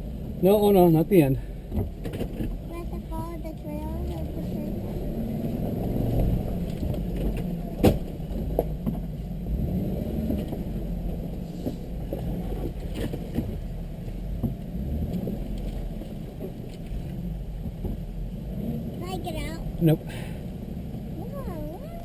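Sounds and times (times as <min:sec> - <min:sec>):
vehicle low rumble: 0:00.0 - 0:22.0
knocks and bumps over rough ground: 0:01.6 - 0:02.8, 0:03.4 - 0:09.3, 0:10.1 - 0:18.2.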